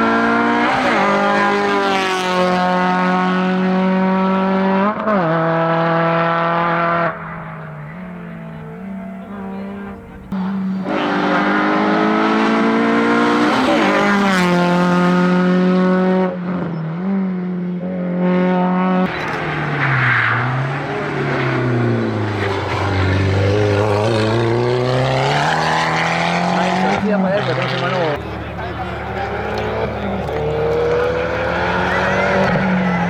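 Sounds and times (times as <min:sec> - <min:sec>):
race car engine at full throttle: 0:00.0 - 0:33.0.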